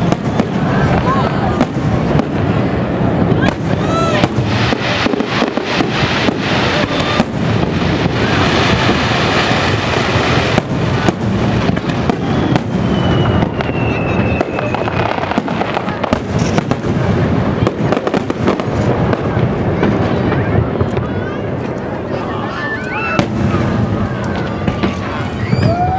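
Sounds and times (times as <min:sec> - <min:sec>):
falling firework whistle: 0:00.0 - 0:01.8, 0:03.4 - 0:15.6, 0:22.5 - 0:25.9
fireworks bangs: 0:00.0 - 0:25.9
fireworks crackling: 0:00.0 - 0:25.9.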